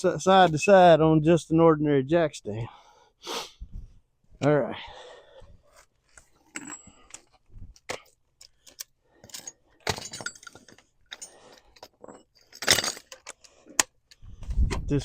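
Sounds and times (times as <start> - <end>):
metal clinks and knocks: 6.4 - 14.8.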